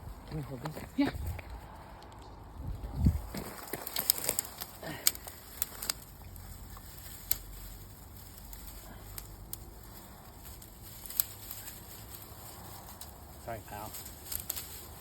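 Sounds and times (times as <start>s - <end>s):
dry stems crackling and snapping: 0.1s - 15.0s.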